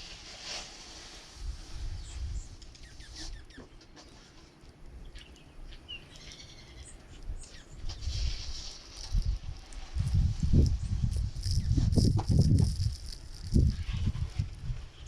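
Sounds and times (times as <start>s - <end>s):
small birds chirping: 2.0s - 4.2s, 4.8s - 14.2s.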